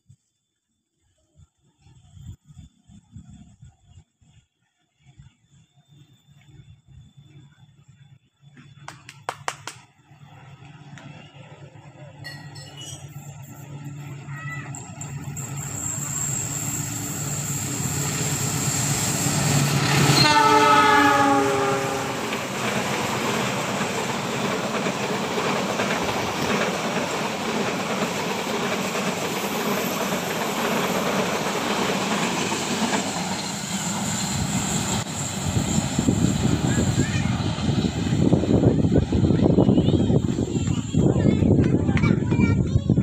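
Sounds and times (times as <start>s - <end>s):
train rumbling: 2.1s - 43.0s
train wheels clattering on track: 8.5s - 9.9s, 12.1s - 43.0s
locomotive horn: 19.9s - 22.4s.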